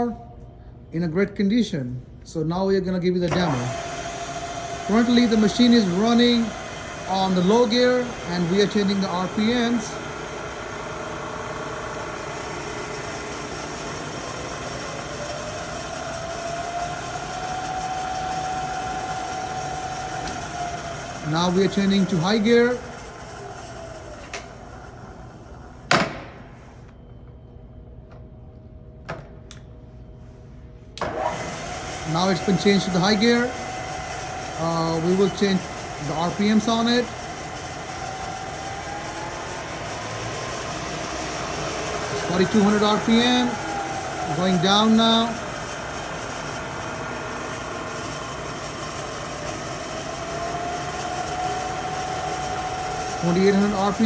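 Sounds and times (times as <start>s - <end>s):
low machine hum: 0.0s - 54.0s
loud metallic clunk: 25.9s - 26.5s.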